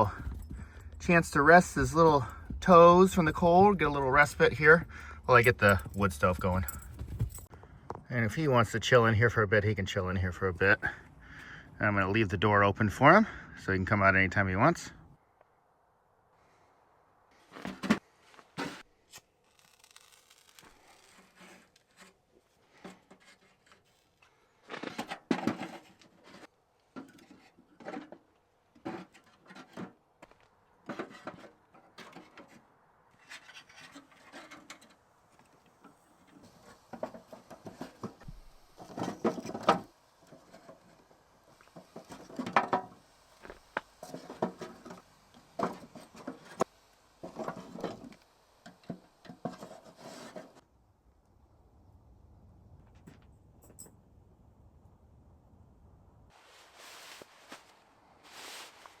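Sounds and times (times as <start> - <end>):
firewood knocking and clattering: 0.0 - 8.0, 35.8 - 40.8, 41.6 - 43.0, 43.6 - 49.7.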